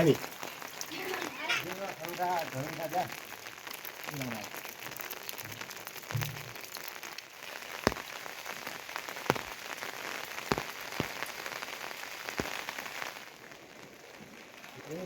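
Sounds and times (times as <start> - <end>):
heavy rain: 0.0 - 15.0
large raindrops tapping: 0.0 - 15.0.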